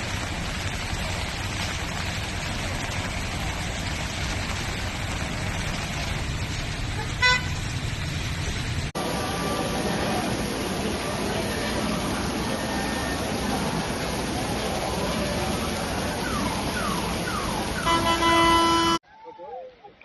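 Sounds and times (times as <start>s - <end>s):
low outdoor rumble: 0.0s - 19.0s
vehicle horn toot: 7.0s - 7.6s, 17.8s - 19.0s.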